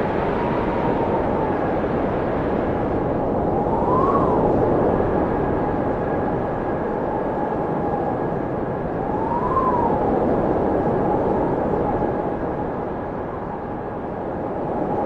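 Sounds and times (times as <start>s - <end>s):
blizzard wind howling: 0.0s - 15.0s
thin wind whistle: 3.4s - 6.0s, 6.9s - 12.4s.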